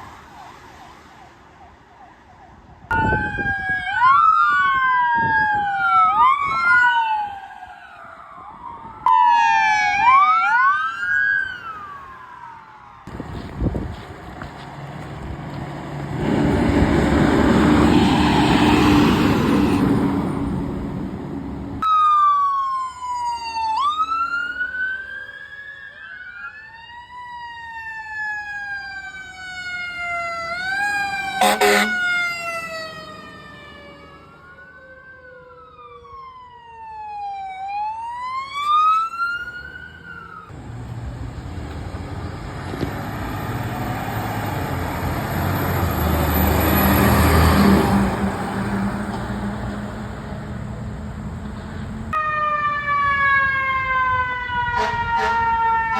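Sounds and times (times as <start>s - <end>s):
emergency siren wailing: 0.0s - 13.8s, 14.5s - 55.9s
road traffic noise: 0.0s - 55.9s
heavy vehicle passing: 13.1s - 21.8s, 40.6s - 52.1s.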